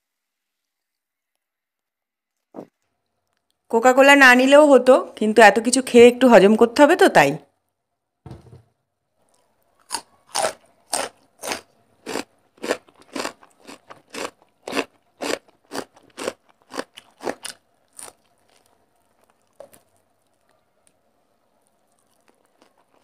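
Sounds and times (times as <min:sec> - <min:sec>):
crunching fried fish: 0:09.2 - 0:21.0, 0:21.6 - 0:23.0.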